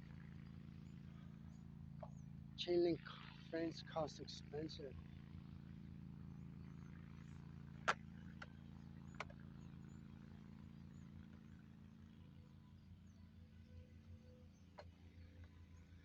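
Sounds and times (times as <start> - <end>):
distant engine drone: 0.0 - 16.0.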